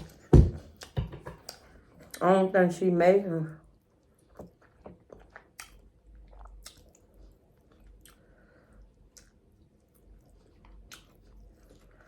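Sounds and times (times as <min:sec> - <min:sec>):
person chewing food: 0:03.7 - 0:12.0
wet mouth smacks and clicks: 0:05.6 - 0:05.8, 0:06.4 - 0:07.0.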